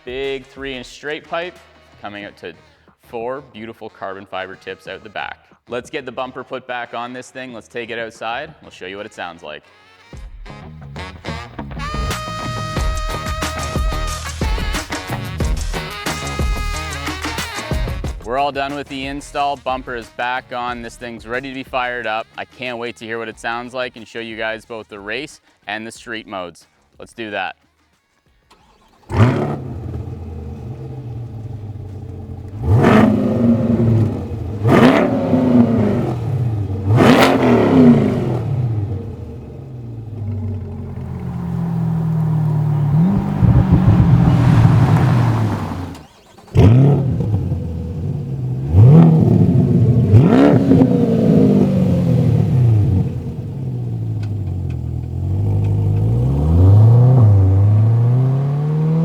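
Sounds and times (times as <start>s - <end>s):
car engine starting with loud flare: 28.5s - 59.0s
car engine idling: 28.6s - 59.0s
car engine revving: 28.6s - 59.0s.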